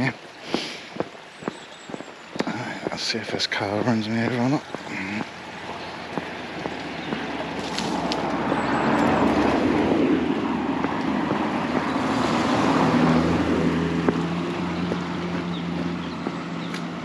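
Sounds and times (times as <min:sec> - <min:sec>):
car driving past: 0:04.5 - 0:17.0.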